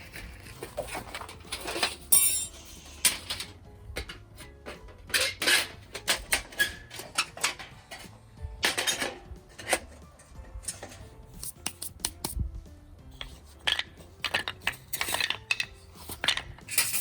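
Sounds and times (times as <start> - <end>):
metal gear clinking and clattering: 0.0 - 10.0, 13.2 - 17.0
background music: 0.0 - 17.0.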